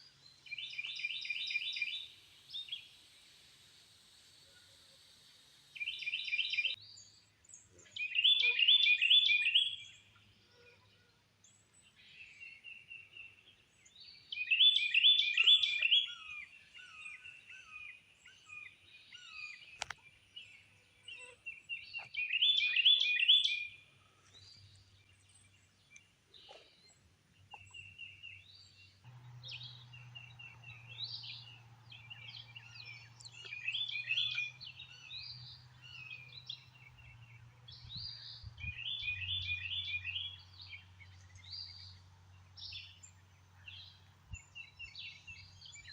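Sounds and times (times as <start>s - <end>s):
quiet bird chirps: 0.0s - 45.9s
songbird singing: 0.0s - 45.9s
steady low hum: 29.0s - 33.6s.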